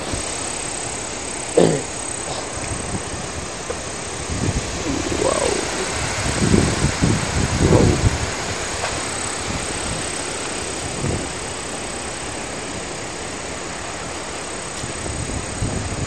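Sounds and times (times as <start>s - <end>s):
strong wind rushing: 2.4s - 10.1s
wind buffeting microphone: 2.4s - 11.6s, 14.8s - 16.0s.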